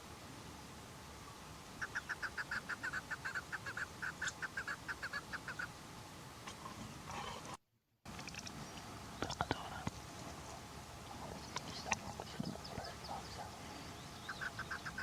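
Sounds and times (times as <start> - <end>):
partridge clucking calls: 1.8 - 5.8, 11.3 - 15.0.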